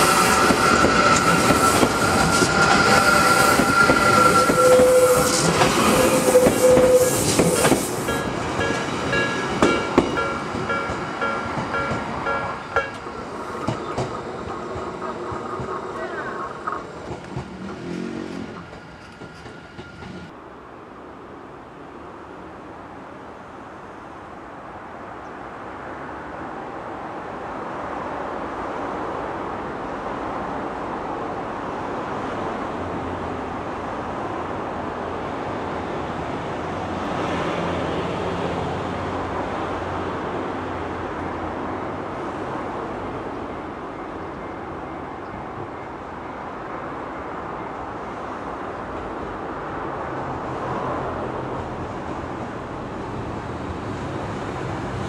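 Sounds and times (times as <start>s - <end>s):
electric trains rumbling: 0.0s - 55.0s
level-crossing warning bell: 8.1s - 13.2s.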